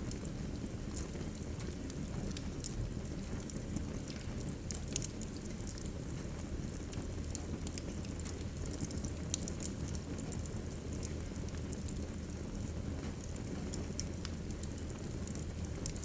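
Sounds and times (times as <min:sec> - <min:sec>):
burning logs crackling and popping: 0:00.0 - 0:16.0.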